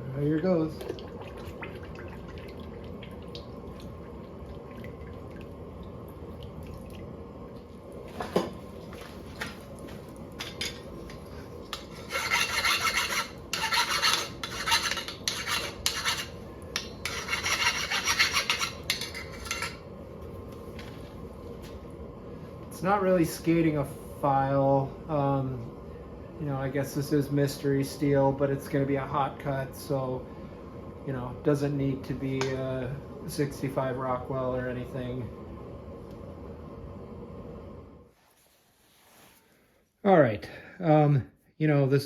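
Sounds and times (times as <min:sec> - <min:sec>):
file scraping steel: 0:11.7 - 0:19.8.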